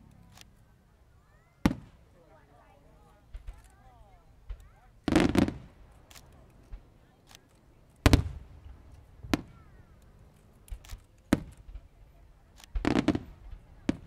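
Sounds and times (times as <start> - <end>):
faint firework cracks: 0.0 - 14.0
sharp firework bangs: 1.3 - 2.2, 4.3 - 7.0, 8.0 - 10.0, 10.7 - 14.0
heavy firework booms: 1.6 - 2.2, 4.4 - 6.0, 8.0 - 9.9, 12.8 - 14.0.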